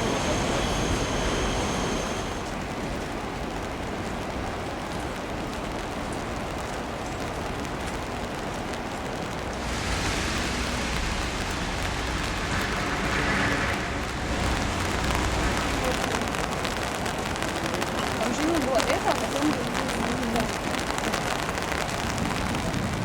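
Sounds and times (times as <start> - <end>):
rushing water hiss: 0.0 - 3.2, 9.0 - 23.0.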